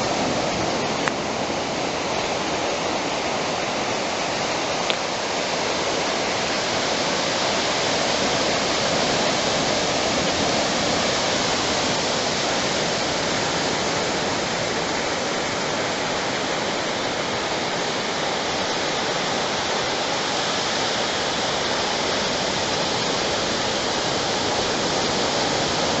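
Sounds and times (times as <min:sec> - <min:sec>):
ocean surf on a beach: 0:00.0 - 0:26.0.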